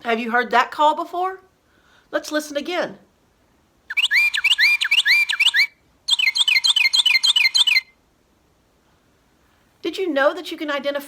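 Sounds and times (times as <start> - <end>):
recorded bird song whistles: 3.9 - 8.0.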